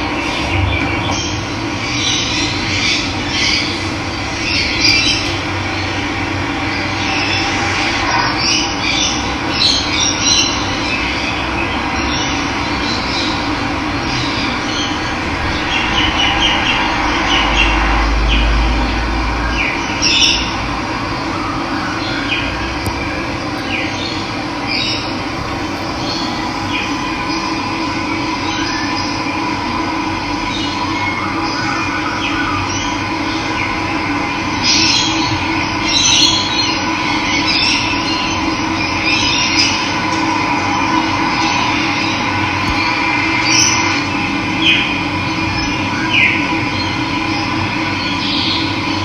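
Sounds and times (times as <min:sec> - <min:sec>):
birds chirping and calling: 0:23.6 - 0:27.8.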